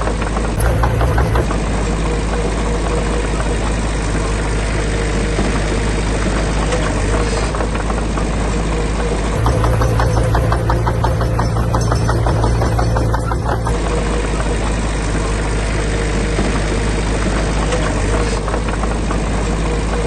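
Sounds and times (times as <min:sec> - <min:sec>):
heavy diesel engine running: 0:00.0 - 0:20.0
quick clattering: 0:00.3 - 0:02.0, 0:09.4 - 0:14.4.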